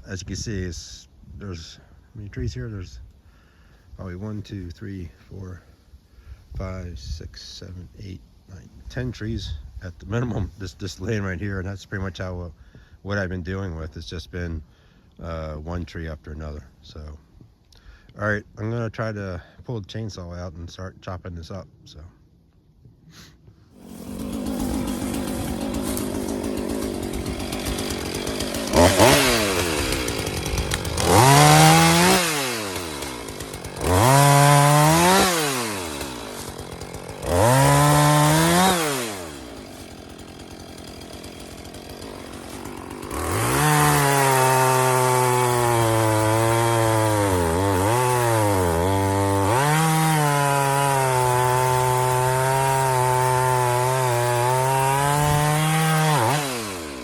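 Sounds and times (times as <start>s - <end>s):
chainsaw cutting tree: 23.2s - 57.0s
chainsaw engine revving: 23.7s - 57.0s.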